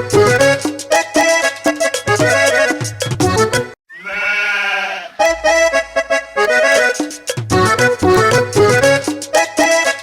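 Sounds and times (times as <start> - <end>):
bouncy children's song: 0.0 - 3.8, 5.2 - 10.0
drawn-out farm animal call: 3.9 - 5.3.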